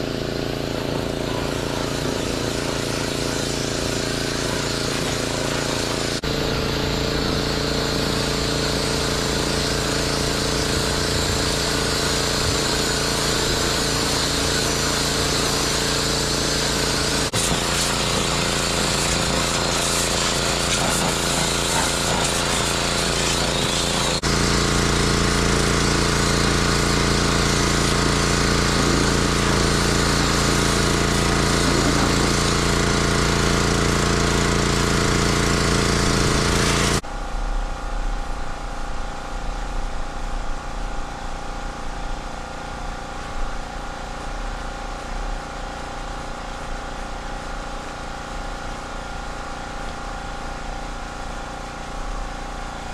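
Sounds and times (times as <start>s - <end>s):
pressure washer spraying: 0.0s - 37.0s
pressure washer engine running: 0.0s - 37.2s, 38.2s - 52.9s.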